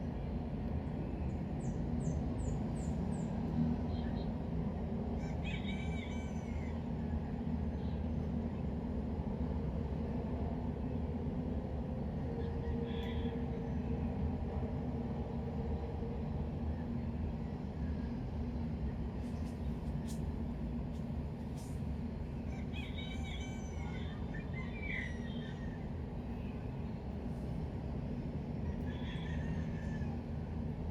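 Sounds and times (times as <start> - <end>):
low ambient rumble: 16.7 - 28.8.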